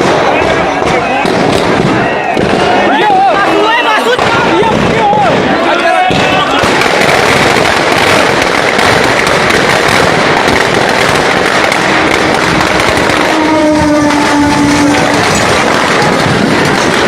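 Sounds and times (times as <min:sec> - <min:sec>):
firecrackers crackling: 0:00.0 - 0:17.0
train horn: 0:13.2 - 0:15.4.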